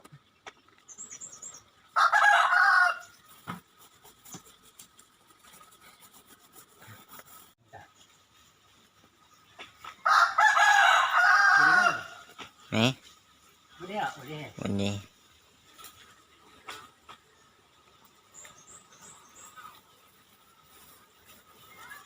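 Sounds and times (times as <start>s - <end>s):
small bird chirp: 0.1s - 1.8s
rooster crowing: 2.0s - 3.1s, 10.0s - 12.3s.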